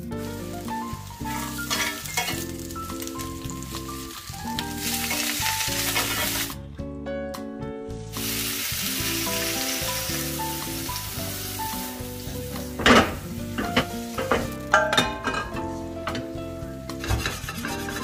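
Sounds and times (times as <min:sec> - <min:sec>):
vegetables sizzling in a pan: 0:00.0 - 0:06.6, 0:08.0 - 0:14.7
background music: 0:00.0 - 0:18.0.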